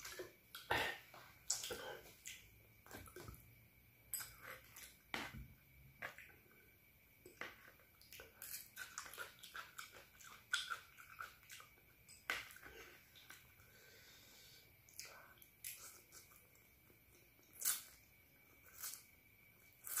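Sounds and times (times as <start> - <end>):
close-up chewing: 7.7 - 11.8.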